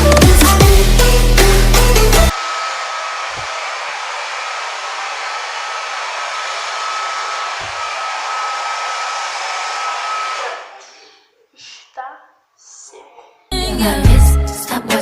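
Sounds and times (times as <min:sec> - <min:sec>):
hair dryer blowing: 0:02.3 - 0:10.8.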